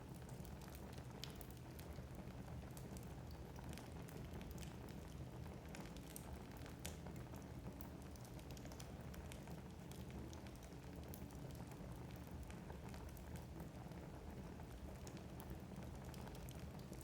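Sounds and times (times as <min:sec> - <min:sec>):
wood fire crackling: 0:00.1 - 0:17.0.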